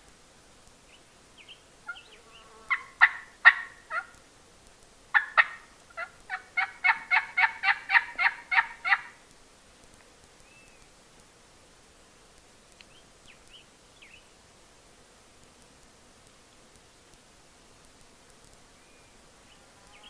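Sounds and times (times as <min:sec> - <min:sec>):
turkey calls: 0:01.8 - 0:04.2, 0:05.1 - 0:09.2.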